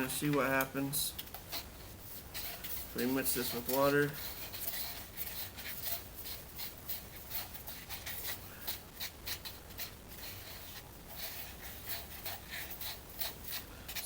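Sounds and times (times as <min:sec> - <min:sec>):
utensil scraping against a cup: 0:01.4 - 0:14.0.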